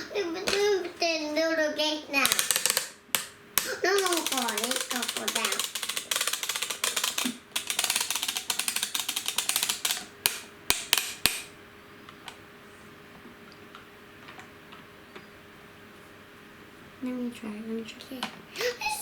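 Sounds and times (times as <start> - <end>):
plastic ratchet clicking: 2.2 - 11.5.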